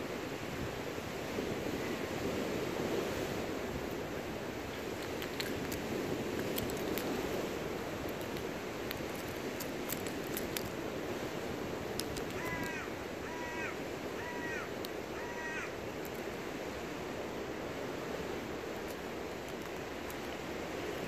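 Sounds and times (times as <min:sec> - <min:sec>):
wind: 0:00.0 - 0:21.0
sharp clicks: 0:11.9 - 0:12.7
bird calling: 0:12.2 - 0:15.8.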